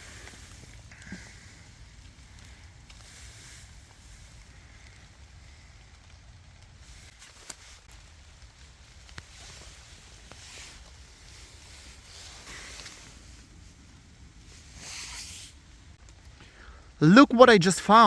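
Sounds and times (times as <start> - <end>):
low steady rumble: 7.8 - 17.1
faint hiss: 9.0 - 18.0.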